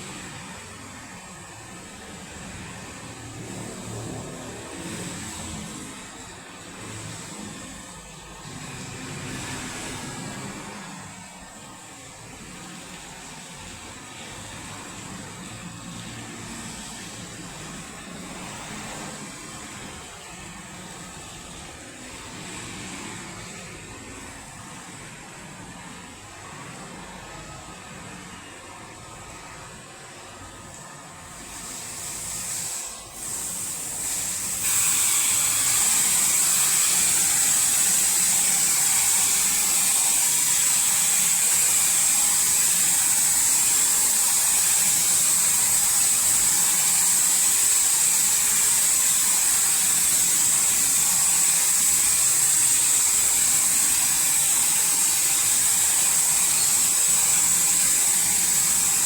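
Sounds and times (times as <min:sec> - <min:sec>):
high-pressure water spray hissing: 0:31.3 - 0:59.0.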